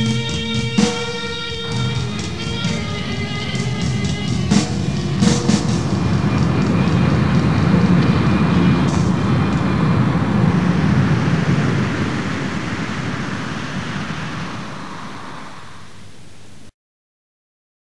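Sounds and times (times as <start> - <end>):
harsh distorted noise music: 0.0 - 12.9.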